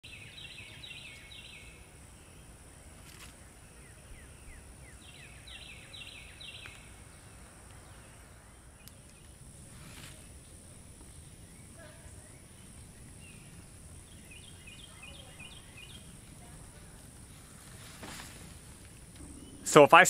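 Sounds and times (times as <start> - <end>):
steady low rumble: 18.4 - 20.0
bird singing sliding notes: 19.2 - 20.0.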